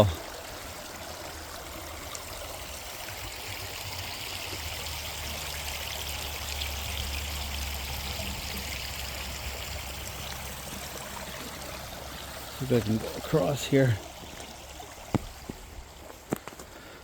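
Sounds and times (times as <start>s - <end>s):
creek trickling over rocks: 0.0s - 17.0s.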